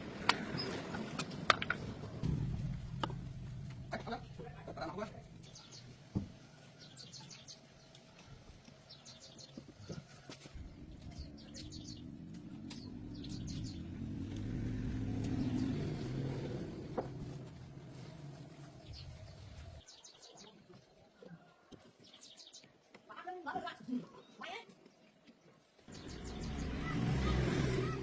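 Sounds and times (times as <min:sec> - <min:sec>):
low vehicle rumble: 0:00.0 - 0:05.4, 0:10.6 - 0:19.8
small birds chirping: 0:03.7 - 0:17.4, 0:18.0 - 0:28.0.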